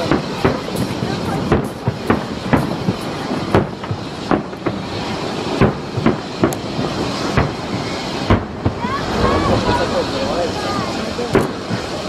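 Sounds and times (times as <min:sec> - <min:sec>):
fireworks bangs: 0:00.0 - 0:12.0
steady background noise: 0:00.0 - 0:12.0.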